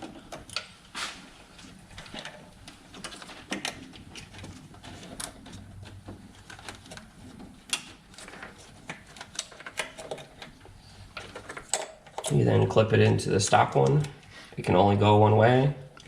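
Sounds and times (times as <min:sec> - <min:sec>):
plastic connectors clicking and rattling: 0:01.9 - 0:12.4.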